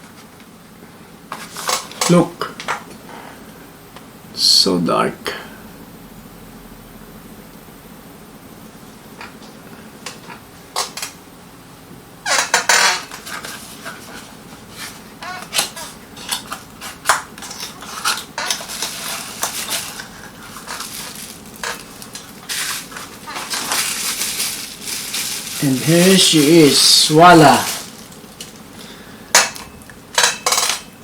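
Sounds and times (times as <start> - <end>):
packaging rustling: 13.0 - 29.0.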